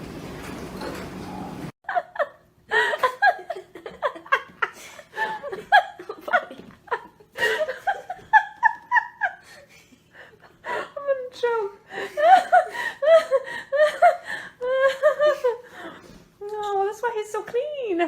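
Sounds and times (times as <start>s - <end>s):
person giggling: 1.9s - 11.0s, 11.9s - 16.1s.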